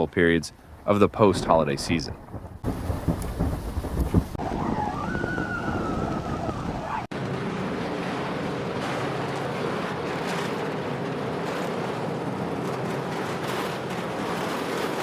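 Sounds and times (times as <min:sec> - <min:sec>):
blizzard wind rushing: 0:00.7 - 0:09.8.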